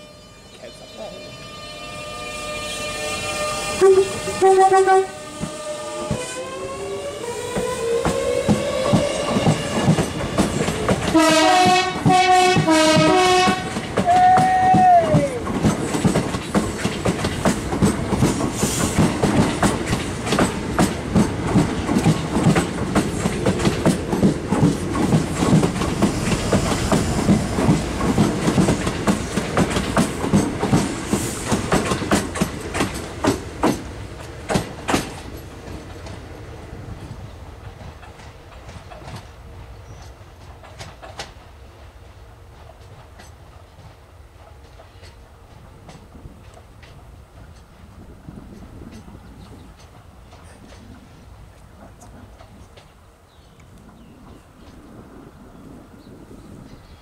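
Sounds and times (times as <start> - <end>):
train horn toots: 0.0 - 10.0, 11.1 - 15.3
wheels clattering over rail joints: 13.0 - 36.2.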